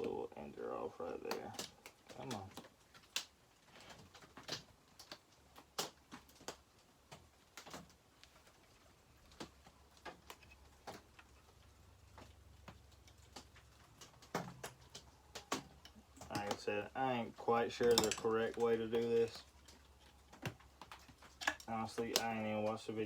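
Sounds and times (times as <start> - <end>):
small tools clicking: 9.3 - 22.8.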